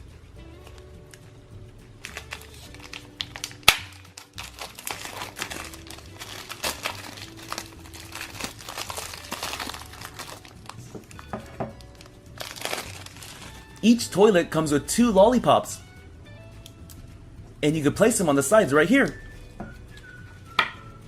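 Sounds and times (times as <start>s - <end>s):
soft background music: 0.0s - 21.0s
plastic packaging crinkling: 2.0s - 14.0s.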